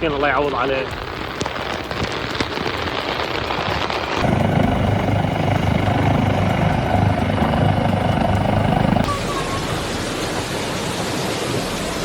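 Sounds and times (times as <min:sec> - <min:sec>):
motor vehicle engine rumble: 0:04.2 - 0:12.0
rain hiss: 0:09.1 - 0:12.0.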